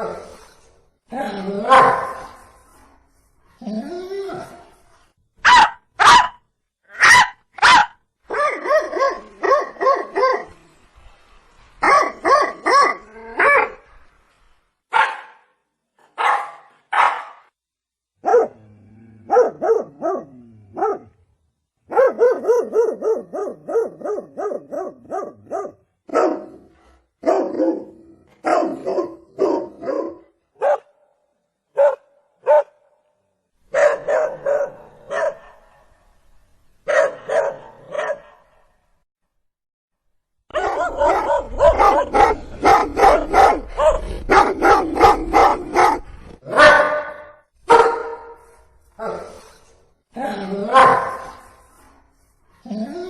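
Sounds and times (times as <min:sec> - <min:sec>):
dog barking: 0:01.7 - 0:02.4, 0:05.4 - 0:06.4, 0:07.0 - 0:10.5, 0:11.8 - 0:13.8, 0:14.9 - 0:15.5, 0:16.1 - 0:17.5, 0:18.2 - 0:18.6, 0:19.3 - 0:21.1, 0:21.9 - 0:26.6, 0:27.2 - 0:31.0, 0:31.8 - 0:32.9, 0:33.7 - 0:35.8, 0:36.9 - 0:38.5, 0:40.5 - 0:48.4, 0:50.7 - 0:51.4.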